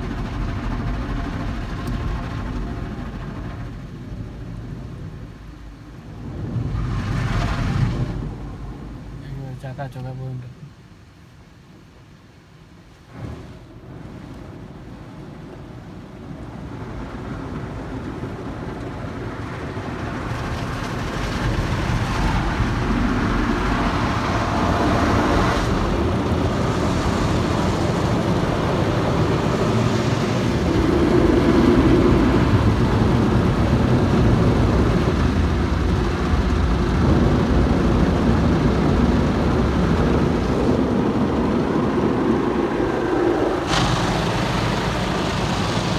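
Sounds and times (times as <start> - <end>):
car wash water spray: 0.0 - 9.7, 19.4 - 45.9.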